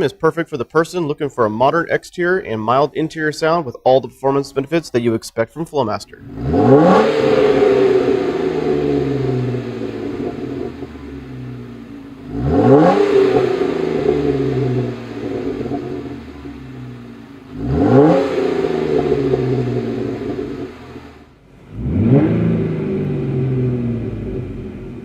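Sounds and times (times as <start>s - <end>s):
car engine revving: 6.2s - 25.0s.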